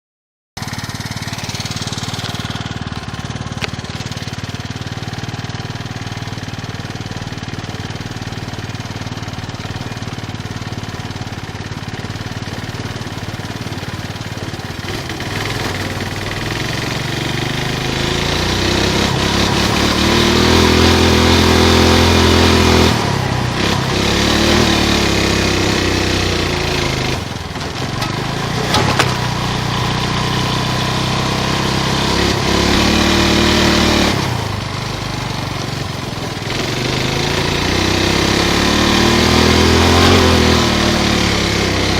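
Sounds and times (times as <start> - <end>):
single-cylinder engine running: 0.6 - 41.9.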